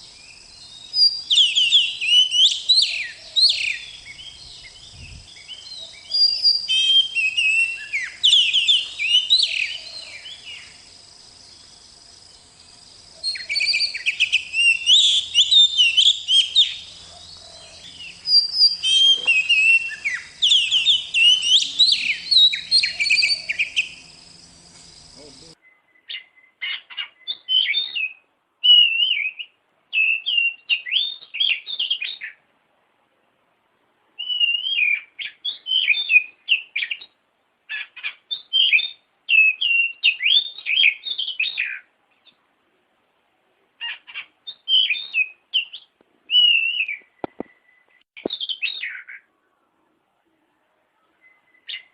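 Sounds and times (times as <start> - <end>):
background hum: 0.0 - 25.6
bird singing whistled phrases: 0.1 - 10.8, 13.2 - 32.3, 34.2 - 37.1, 38.3 - 41.8, 44.5 - 49.2, 51.0 - 51.9.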